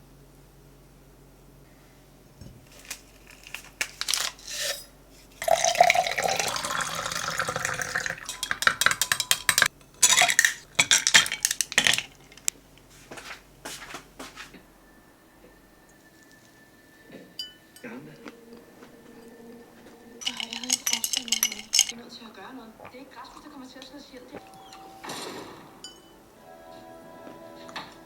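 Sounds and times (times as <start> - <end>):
running water: 2.7 - 12.5, 20.2 - 21.9
dishes and utensils clattering: 2.7 - 13.3, 20.2 - 22.0.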